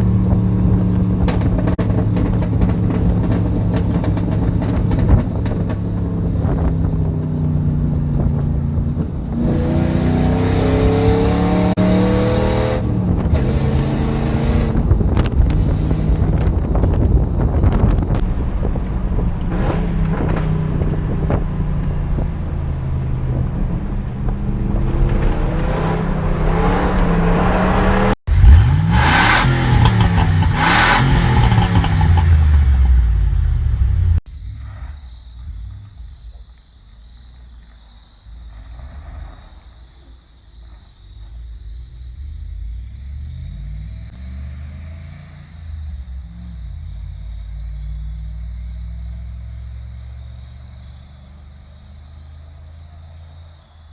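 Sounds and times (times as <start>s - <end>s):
engine exhaust revving: 8.9s - 17.0s, 17.8s - 34.2s.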